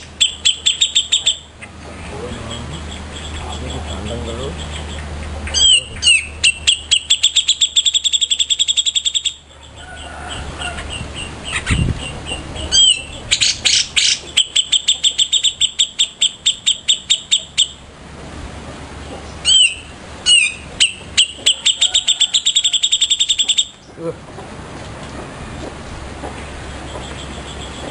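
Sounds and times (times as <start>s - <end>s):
songbird rapid sharp notes: 0.0s - 9.5s, 11.0s - 17.9s, 19.4s - 23.9s
bird swooping call: 19.4s - 23.8s.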